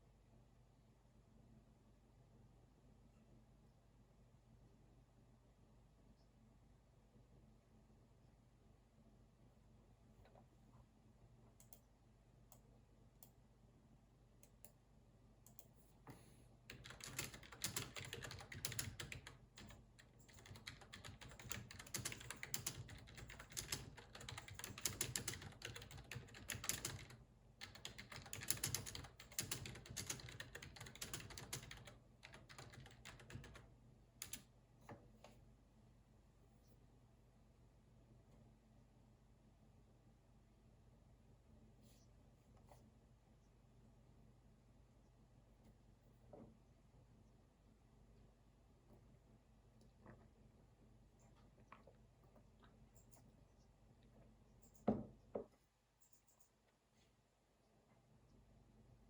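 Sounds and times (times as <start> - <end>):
computer keyboard typing: 16.7 - 34.5.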